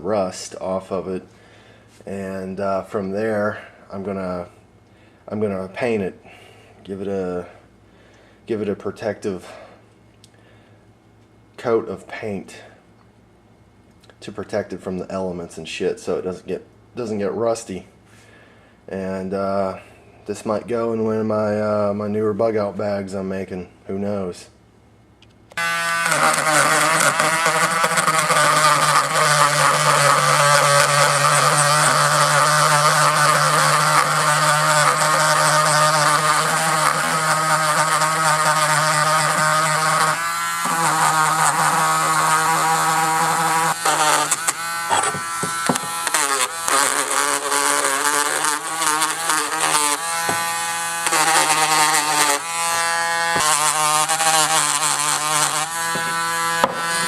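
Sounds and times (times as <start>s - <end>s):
rotary tool grinding metal: 25.6s - 57.0s.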